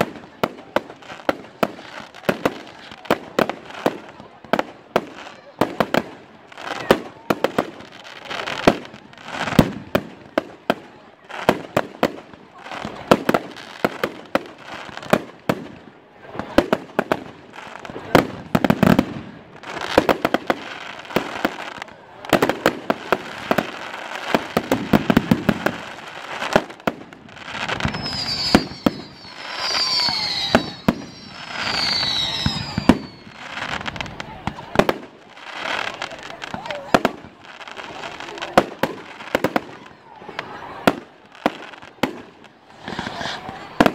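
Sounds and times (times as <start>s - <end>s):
fireworks bangs and crackling: 0.0s - 43.9s
fireworks falling whistles: 27.3s - 34.2s, 40.8s - 43.9s.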